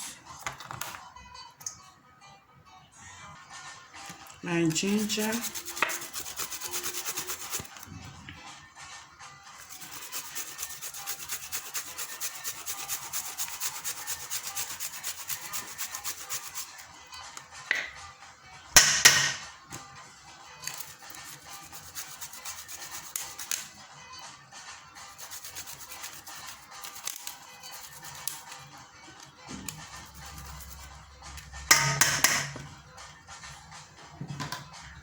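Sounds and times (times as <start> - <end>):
ginger grating on hand grater: 4.6 - 7.8, 9.6 - 16.8, 20.6 - 23.6, 25.0 - 28.6, 29.8 - 30.9.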